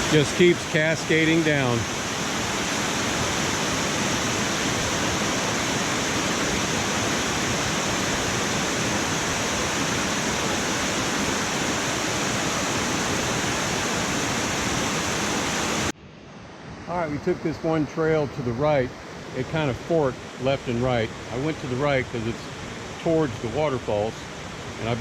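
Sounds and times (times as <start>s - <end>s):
waterfall rushing: 0.0s - 15.9s.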